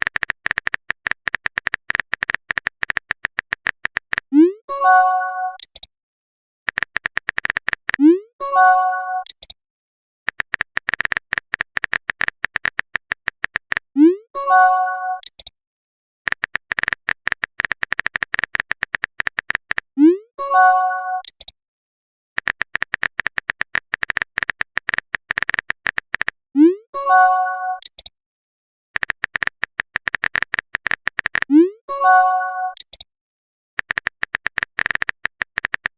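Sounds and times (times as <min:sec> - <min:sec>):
rapid typing clicks: 0:00.0 - 0:04.3, 0:06.7 - 0:08.0, 0:10.3 - 0:13.9, 0:16.3 - 0:19.9, 0:22.4 - 0:26.4, 0:29.0 - 0:31.5, 0:33.8 - 0:35.9.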